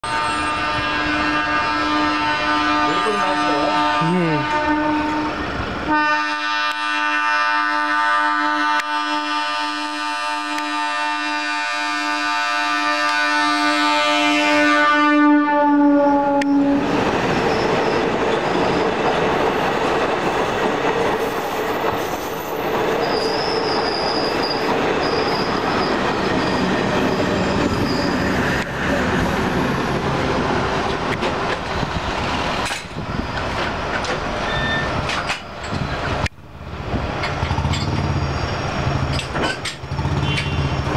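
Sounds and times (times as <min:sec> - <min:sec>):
train horn: 0:00.0 - 0:16.9, 0:40.1 - 0:40.9
train coaches rumbling on rails: 0:00.0 - 0:40.9.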